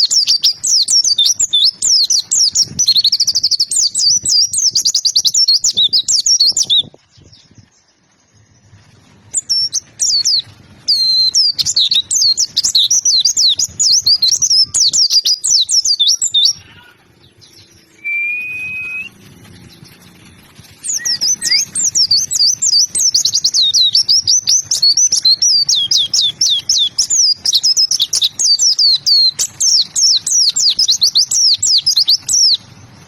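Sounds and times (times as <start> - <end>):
steady bird whistle: 0.0 - 19.2, 20.6 - 32.7
bird twittering song: 0.0 - 33.0.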